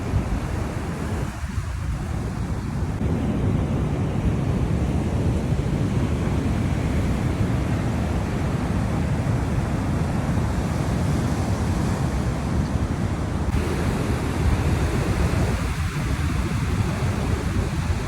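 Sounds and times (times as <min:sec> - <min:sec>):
wind buffeting microphone: 0:00.0 - 0:18.0
surf breaking on rocks: 0:13.4 - 0:18.0.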